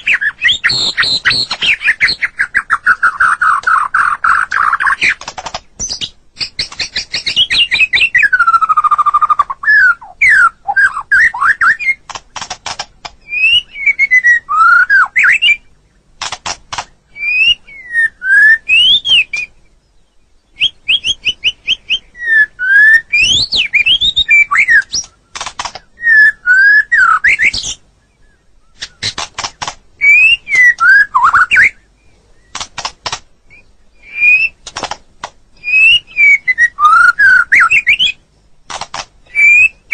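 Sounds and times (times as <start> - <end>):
bird singing whistled notes: 0.0 - 5.2, 5.8 - 12.1, 13.2 - 15.9, 17.1 - 29.2, 30.0 - 32.6, 33.5 - 34.6, 35.6 - 38.2, 39.2 - 39.9
fast rattling clicks: 5.0 - 7.4, 12.1 - 13.2, 16.2 - 16.9, 25.0 - 25.8, 28.9 - 29.8, 32.5 - 33.3, 34.6 - 35.4, 38.7 - 39.2.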